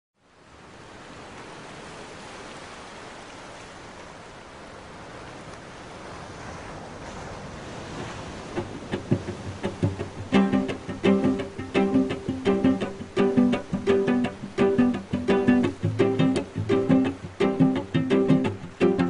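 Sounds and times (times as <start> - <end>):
steady rushing noise: 7.5 - 19.0
plucked-string music: 8.5 - 19.0.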